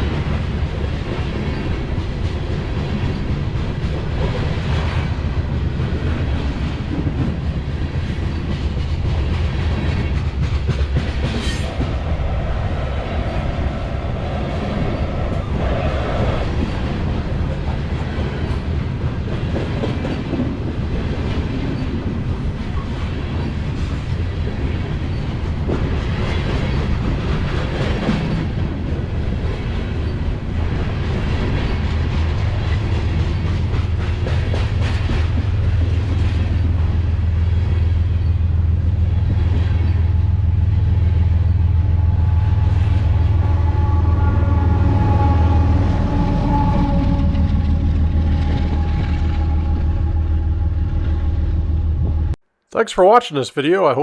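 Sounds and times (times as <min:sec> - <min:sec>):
freight train rumbling past: 0:00.0 - 0:52.4
steady whine: 0:40.0 - 0:52.4.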